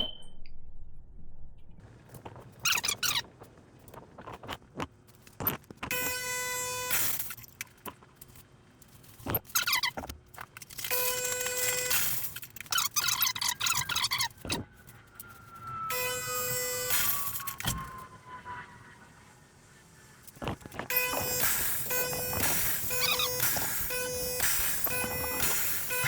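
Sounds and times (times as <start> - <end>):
sputtering squeaky water hiss: 2.5 - 3.3
espresso machine pump buzzing: 20.9 - 26.0.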